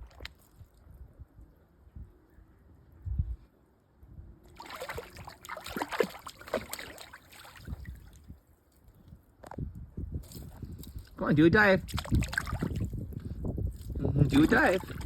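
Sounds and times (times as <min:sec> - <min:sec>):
goose splashing in water: 0:04.5 - 0:08.0, 0:11.9 - 0:12.9, 0:14.3 - 0:15.0.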